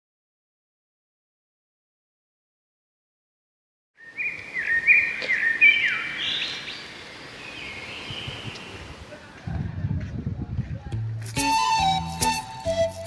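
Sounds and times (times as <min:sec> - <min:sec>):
birds calling: 0:04.0 - 0:09.3.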